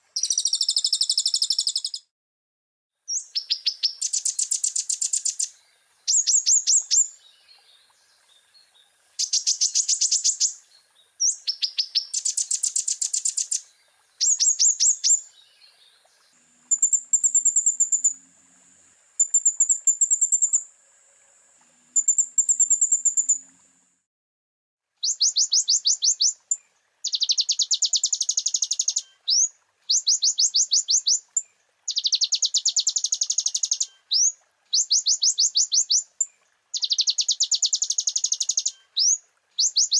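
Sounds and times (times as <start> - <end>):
sunbird singing rising notes: 11.3 - 20.7, 21.9 - 23.8.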